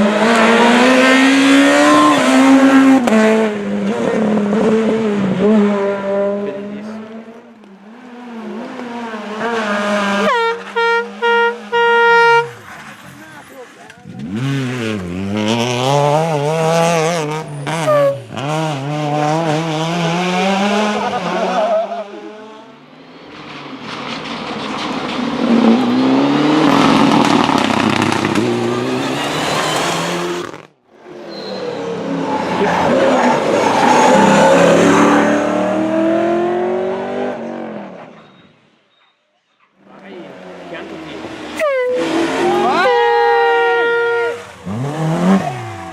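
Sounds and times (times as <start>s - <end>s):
engines revving hard: 0.0s - 11.8s, 14.0s - 22.7s, 24.5s - 30.7s, 31.7s - 38.2s, 39.9s - 45.9s
rally cars passing at speed: 0.0s - 38.2s, 39.8s - 45.9s
tyre squeal: 17.4s - 18.4s, 31.2s - 34.6s, 38.0s - 39.6s, 41.6s - 45.9s.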